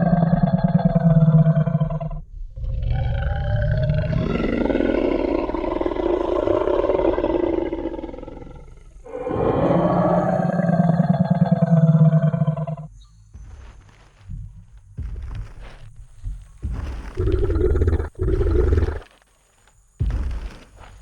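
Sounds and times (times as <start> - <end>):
dinosaur roar: 0.0 - 12.9, 17.0 - 19.1.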